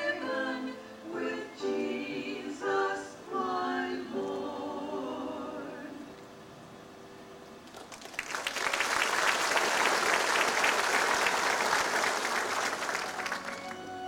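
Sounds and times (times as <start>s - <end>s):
audience applauding: 7.6s - 14.0s.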